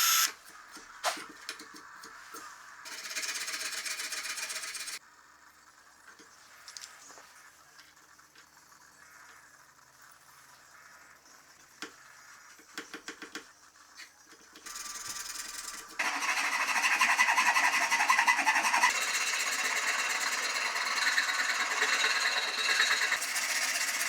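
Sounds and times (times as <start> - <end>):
power tool rasping: 14.7 - 24.0.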